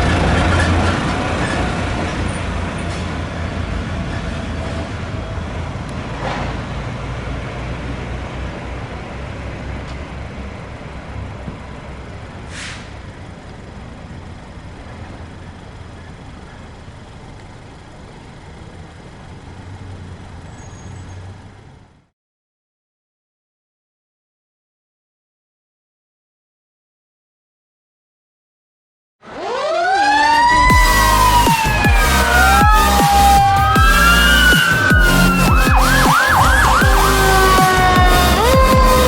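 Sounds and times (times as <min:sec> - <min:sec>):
fire truck engine rumble: 0:00.0 - 0:22.1, 0:29.2 - 0:39.0
air brake hiss: 0:12.5 - 0:13.0.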